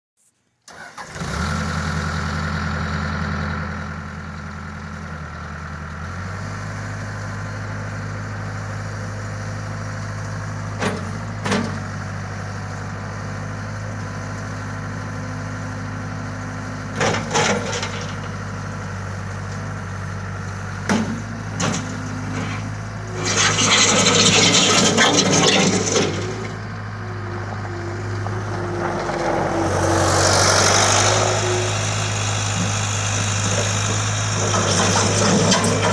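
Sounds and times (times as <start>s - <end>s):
diesel engine idling: 17.7s - 35.9s
loud rushing noise: 27.4s - 32.6s.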